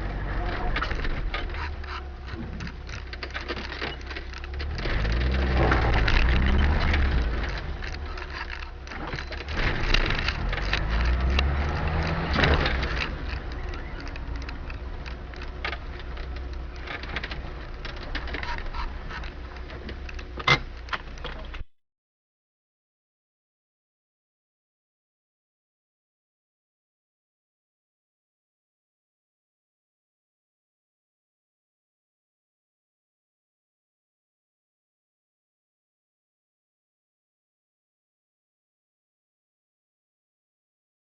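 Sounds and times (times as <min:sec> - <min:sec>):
car engine and road rumble: 0:00.0 - 0:21.7
knocks and rattles: 0:00.0 - 0:21.7.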